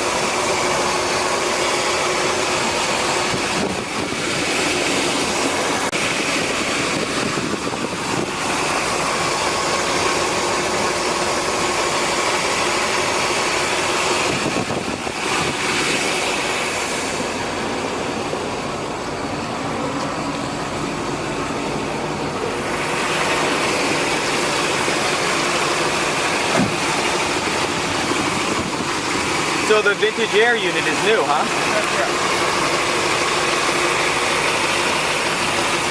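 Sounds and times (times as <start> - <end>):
car engine idling: 0.0 - 35.9.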